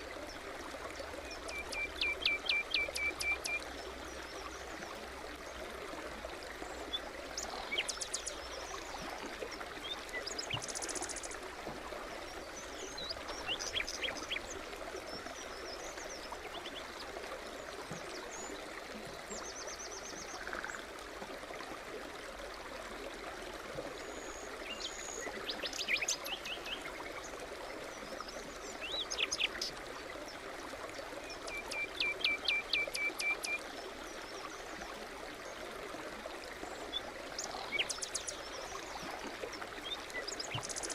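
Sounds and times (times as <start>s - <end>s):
stream babbling: 0.0s - 40.9s
songbirds trilling and chirping: 6.6s - 11.4s, 12.2s - 20.8s, 24.2s - 30.4s, 36.7s - 40.9s.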